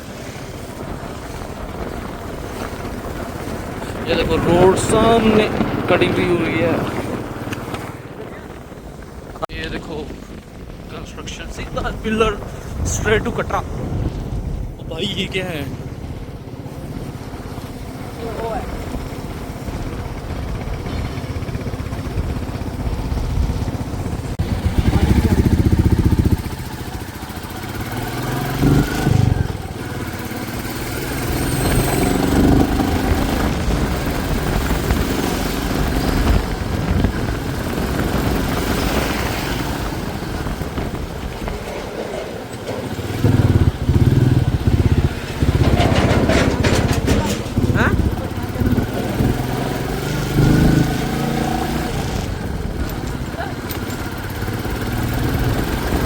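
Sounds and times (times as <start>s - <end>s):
vehicle engine and road noise: 0.0s - 56.0s
low rumbling swells: 22.0s - 53.4s.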